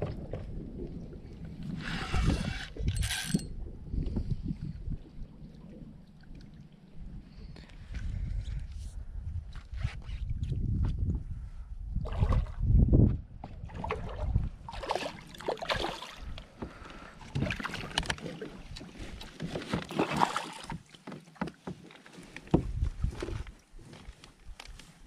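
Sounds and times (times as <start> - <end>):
wind buffeting microphone: 0.0 - 6.0, 7.0 - 14.8, 22.6 - 23.5
kayak hull noise: 13.4 - 25.0
water splashing: 13.6 - 21.0.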